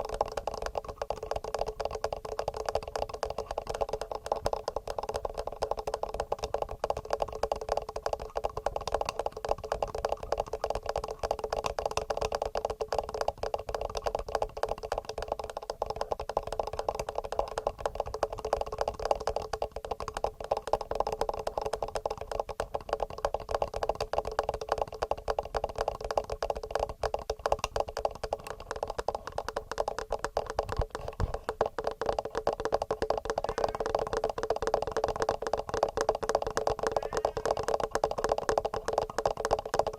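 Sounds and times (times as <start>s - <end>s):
fingernail tapping on microphone: 15.0s - 39.9s.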